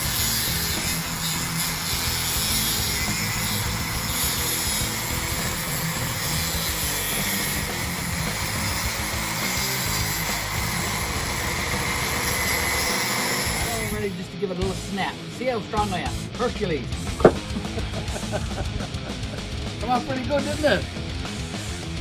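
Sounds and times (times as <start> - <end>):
angle grinder cutting stone: 0.0 - 14.1, 17.1 - 17.7
background music with bass: 14.0 - 22.0.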